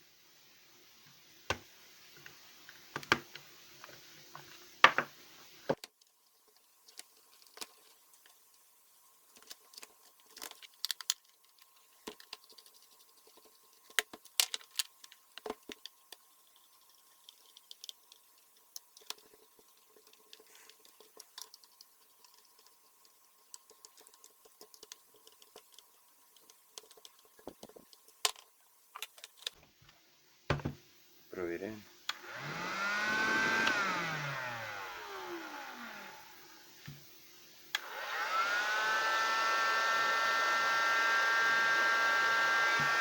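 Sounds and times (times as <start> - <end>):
plastic parts clicking and tapping: 9.4 - 12.7, 13.4 - 16.2, 17.2 - 29.6.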